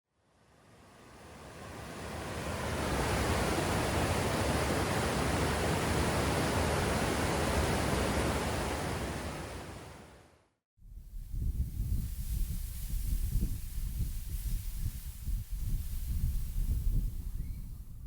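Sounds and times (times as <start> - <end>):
rushing water: 1.2 - 10.2.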